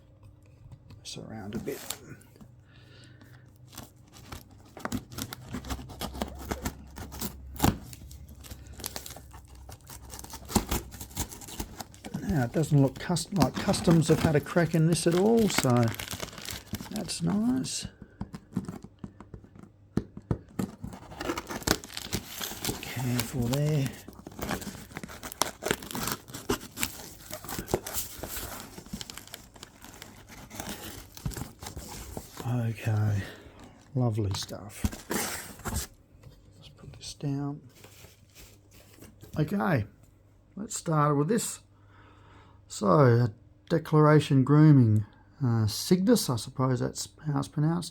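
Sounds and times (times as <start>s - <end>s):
packing material crinkling and tearing: 3.7s - 19.7s, 20.5s - 33.3s.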